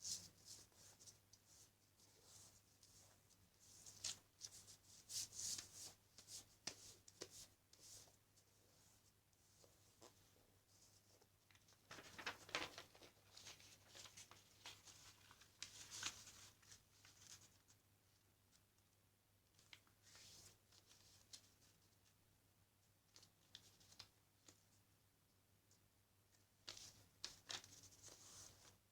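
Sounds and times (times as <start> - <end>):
paper rustling and crinkling: 11.2 - 17.7, 26.6 - 28.8.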